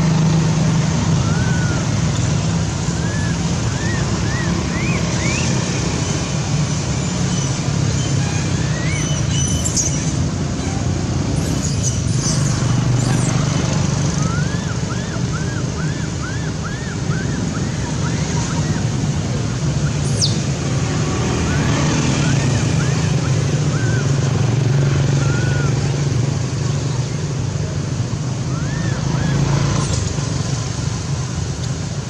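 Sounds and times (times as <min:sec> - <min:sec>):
low engine-like hum: 0:00.0 - 0:32.0
high chirping calls: 0:01.1 - 0:06.4, 0:07.0 - 0:20.6.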